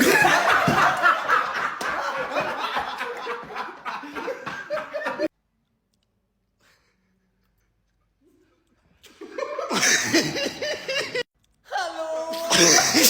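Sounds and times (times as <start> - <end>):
people laughing: 0.0 - 5.3, 9.0 - 11.3, 12.0 - 13.0.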